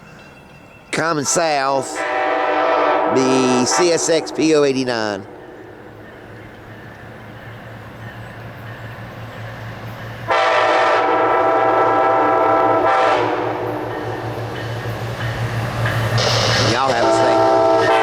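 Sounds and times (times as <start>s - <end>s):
approaching train hum: 0.0s - 18.0s
train horn blast: 1.8s - 6.0s, 10.3s - 14.4s, 16.2s - 18.0s.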